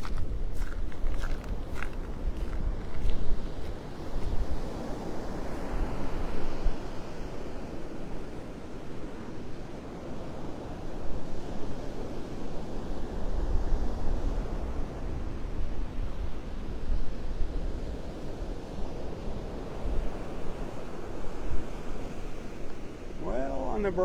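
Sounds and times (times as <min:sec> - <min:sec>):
wind buffeting microphone: 0:00.0 - 0:09.3
surf washing on beach: 0:00.0 - 0:24.0.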